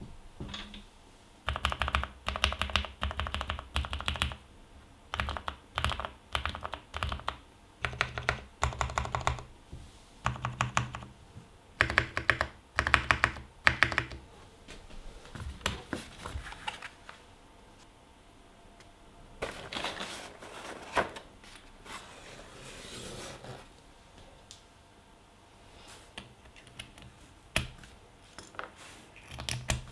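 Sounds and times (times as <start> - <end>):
mechanical keyboard typing: 1.5 - 4.4, 5.1 - 9.5, 10.2 - 11.1, 11.8 - 14.2.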